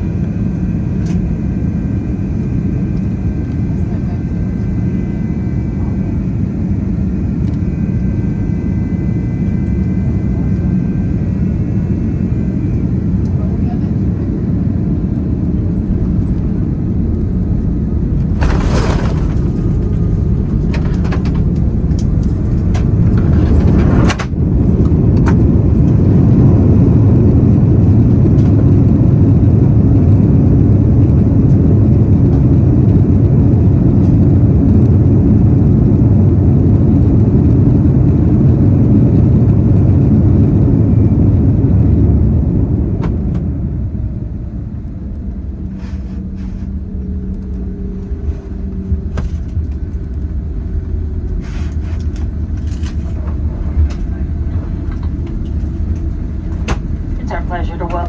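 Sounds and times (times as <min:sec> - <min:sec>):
airplane cabin rumble: 0:00.0 - 0:58.0
loud rollout rumble: 0:14.6 - 0:58.0
rush with rattles and clicks: 0:18.1 - 0:26.1.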